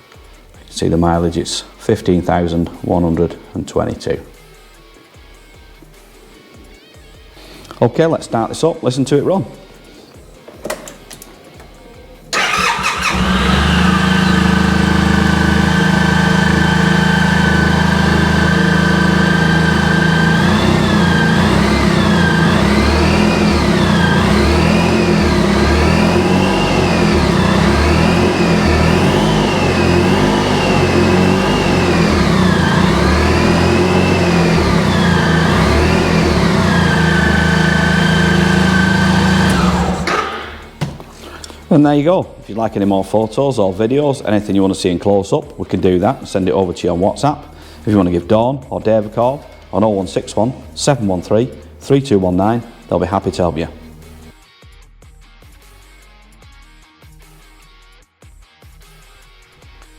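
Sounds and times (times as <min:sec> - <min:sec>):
motorcycle engine revving: 0:12.3 - 0:41.7
motorcycle engine starting and idling: 0:12.3 - 0:41.8.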